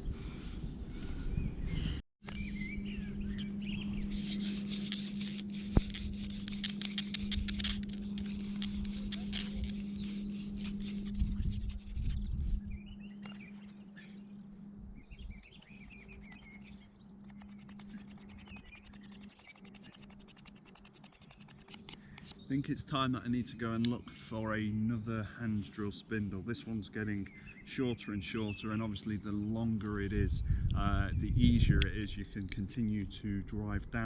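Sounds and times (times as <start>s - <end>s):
birds chirping: 0.0s - 5.2s, 8.3s - 30.2s, 31.3s - 33.7s
steady low hum: 0.0s - 34.0s
wooden spindle rasping scrape: 4.1s - 12.2s, 15.8s - 22.4s.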